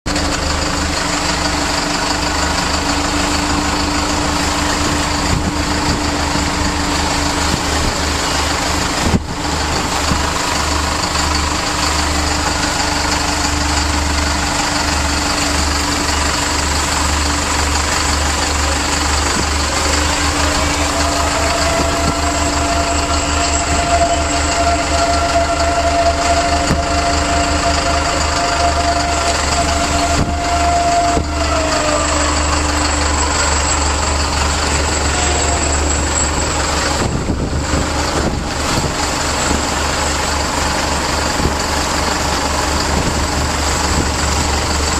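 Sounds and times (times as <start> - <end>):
diesel engine idling: 0.0 - 44.9
engine knock: 0.0 - 44.9
high steady whine: 0.1 - 44.9.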